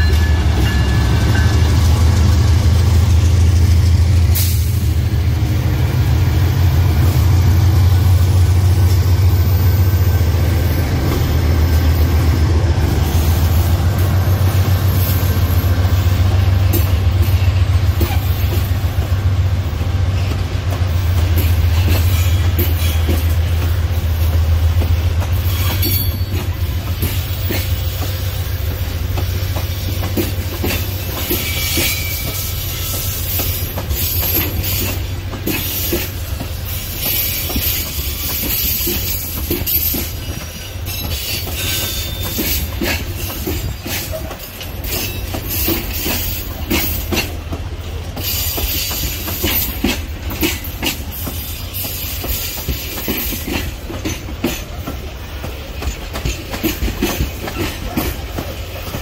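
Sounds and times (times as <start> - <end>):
locomotive engine drone: 0.0 - 48.2.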